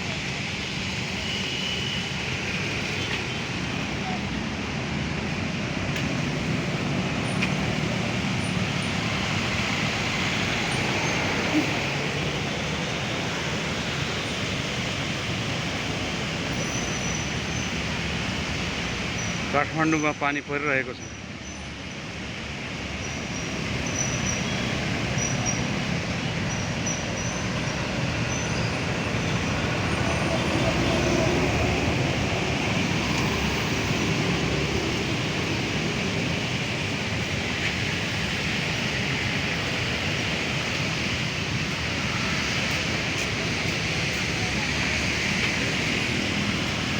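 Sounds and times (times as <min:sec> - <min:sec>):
rain on a street: 0:00.0 - 0:46.9
traffic engines humming: 0:00.0 - 0:46.9
vehicle rumble approaching: 0:21.2 - 0:46.9.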